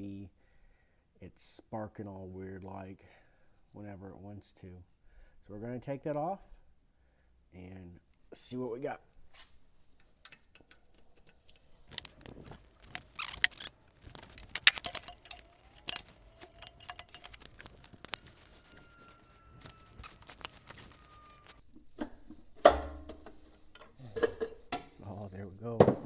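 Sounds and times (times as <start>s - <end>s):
tools and bolts clinking on metal: 11.9s - 21.6s.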